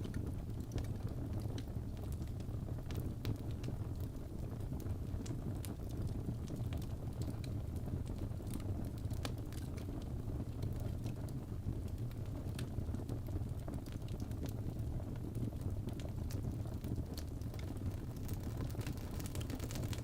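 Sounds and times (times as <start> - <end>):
fireplace fire crackling: 0.0 - 20.0.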